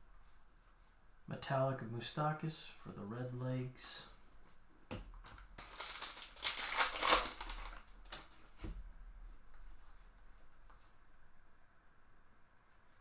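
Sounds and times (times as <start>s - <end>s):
plastic wrapper crinkling: 5.3s - 8.6s.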